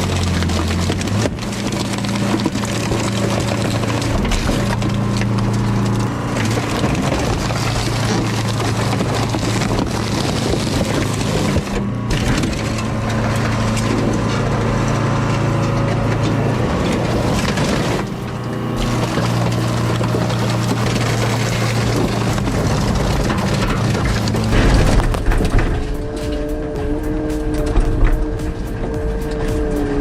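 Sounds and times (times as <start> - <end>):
heavy machine engine running: 0.0 - 30.0
scrap metal crushing: 0.0 - 30.0.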